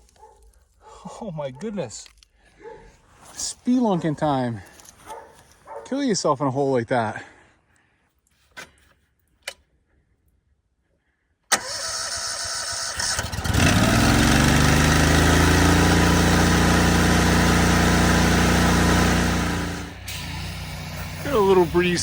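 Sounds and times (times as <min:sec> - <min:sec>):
engine running: 0:11.6 - 0:22.0.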